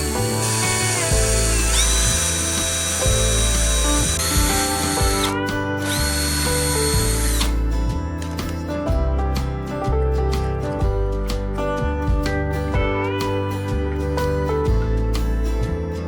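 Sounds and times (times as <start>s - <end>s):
power tool motor whining: 0.0s - 7.6s
background music: 0.0s - 16.0s.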